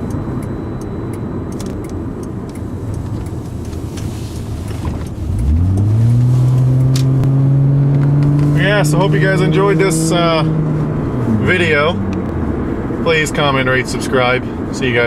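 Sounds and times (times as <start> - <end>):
car engine: 0.0 - 15.0
road noise: 0.0 - 15.0.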